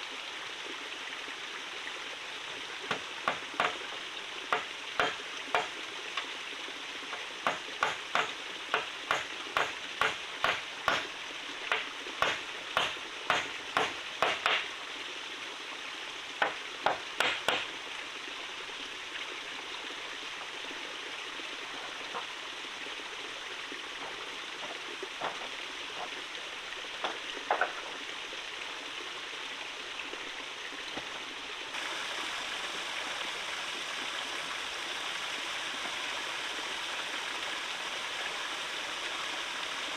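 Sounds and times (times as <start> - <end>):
running water: 0.0 - 39.9
sharp knocks: 2.9 - 3.8, 4.5 - 5.7, 7.4 - 11.1, 11.7 - 14.7, 16.4 - 17.7.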